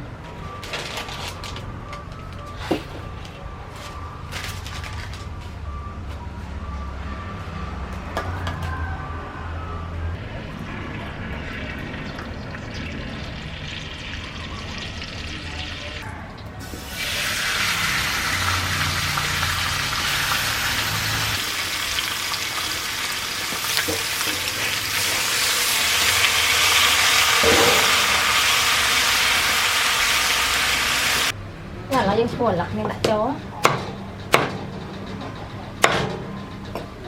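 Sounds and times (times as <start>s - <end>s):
food sizzling in hot oil: 16.6s - 31.3s.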